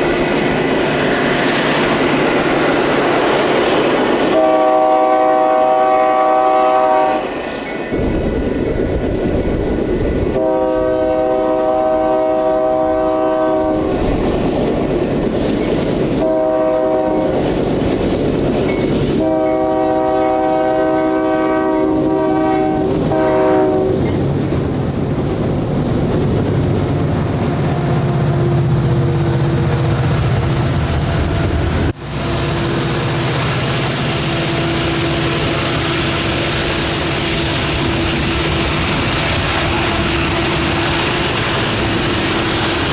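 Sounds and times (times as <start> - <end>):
locomotive horn blasts: 4.3 - 7.3, 10.4 - 13.9, 16.2 - 17.4, 19.2 - 24.0
locomotive engine rumble: 21.9 - 42.9.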